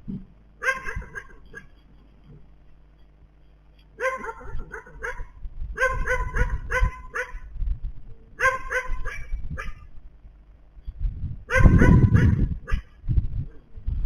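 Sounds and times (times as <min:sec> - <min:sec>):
animal bark-like calls: 0:00.6 - 0:01.8, 0:04.0 - 0:07.5, 0:08.4 - 0:09.9, 0:11.5 - 0:13.7.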